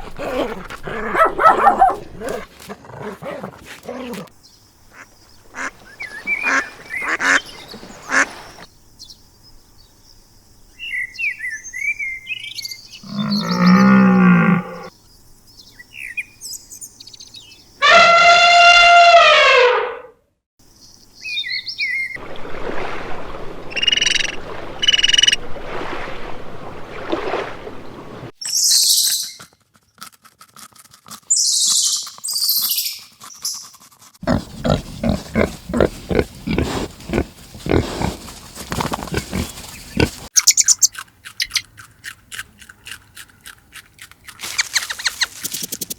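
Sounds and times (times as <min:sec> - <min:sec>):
bird chirps and calls: 0:39.2 - 0:41.7, 0:44.4 - 0:45.9.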